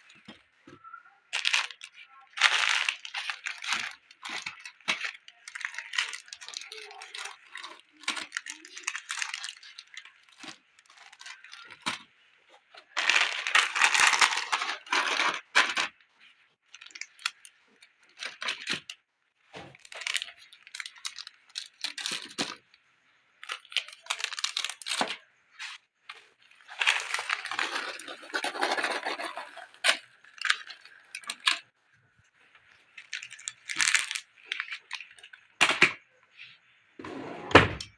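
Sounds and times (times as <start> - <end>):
items clattering together: 0.0 - 16.0
plastic snack packets crinkling: 0.0 - 19.0, 19.8 - 22.8, 23.4 - 31.8, 32.5 - 36.6.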